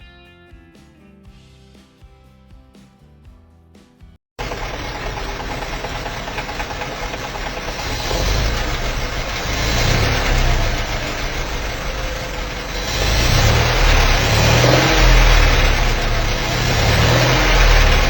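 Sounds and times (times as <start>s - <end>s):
car engine running: 4.4s - 18.0s.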